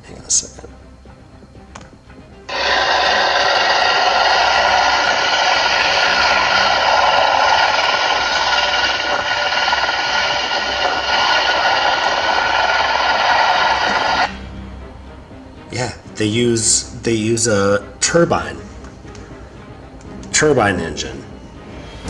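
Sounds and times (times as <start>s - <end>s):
machine whine over rushing air: 2.5s - 14.4s.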